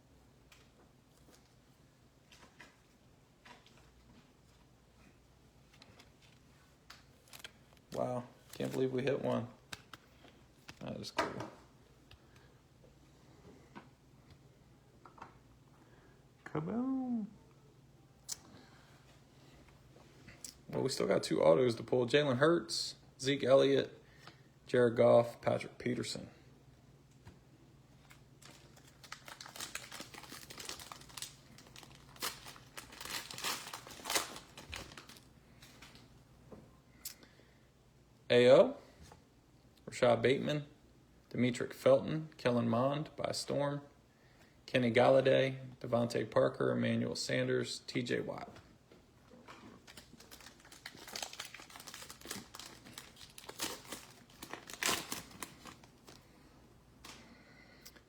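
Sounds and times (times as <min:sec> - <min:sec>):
plastic wrapper crinkling and tearing: 0:06.0 - 0:10.0, 0:28.0 - 0:36.1, 0:49.5 - 0:56.3.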